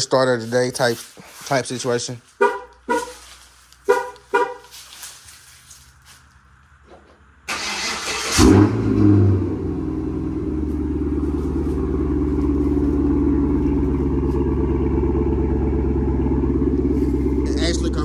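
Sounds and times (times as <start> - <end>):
car engine revving and idling: 5.7 - 18.0
engine starter cranking: 7.5 - 9.4.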